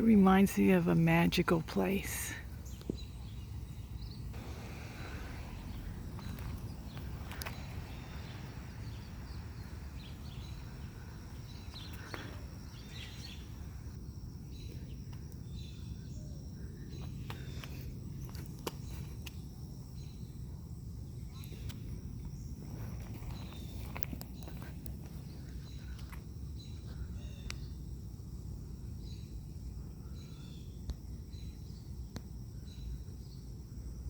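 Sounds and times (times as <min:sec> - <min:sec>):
steady low rumble: 0:00.0 - 0:32.3
footstep clicks: 0:06.1 - 0:07.8.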